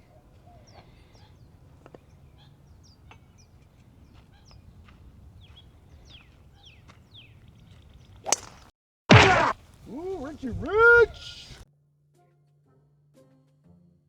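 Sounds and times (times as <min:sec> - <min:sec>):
small birds chirping: 0:00.0 - 0:08.7, 0:09.6 - 0:11.6.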